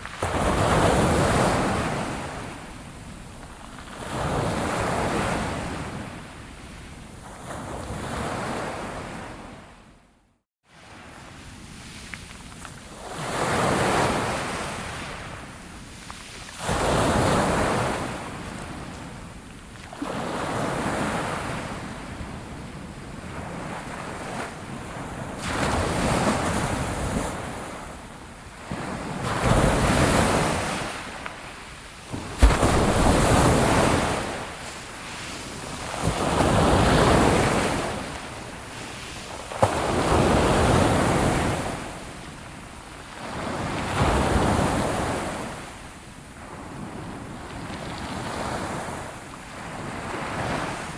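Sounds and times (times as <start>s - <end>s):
ocean waves breaking: 28.6s - 42.1s.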